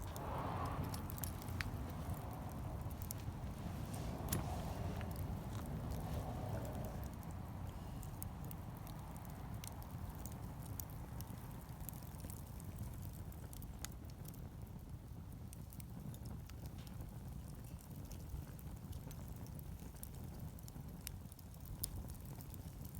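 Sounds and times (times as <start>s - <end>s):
low rumble: 0.0s - 8.9s
wood fire crackling and popping: 0.0s - 22.9s.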